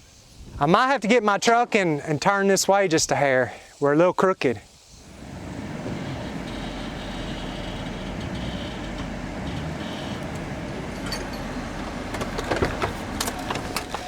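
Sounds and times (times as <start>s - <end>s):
vehicle engine running: 5.0s - 14.0s
sharp knocks and clanks: 7.9s - 14.0s.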